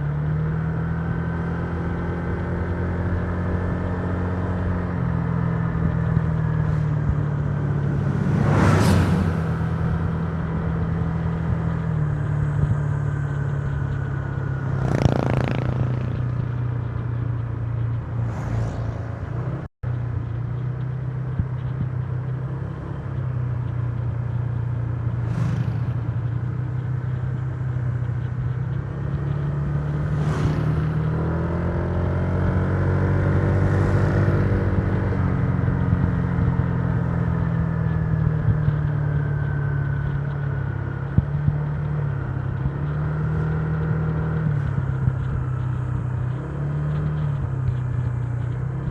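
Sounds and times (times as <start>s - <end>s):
scooter engine running: 11.6s - 18.1s.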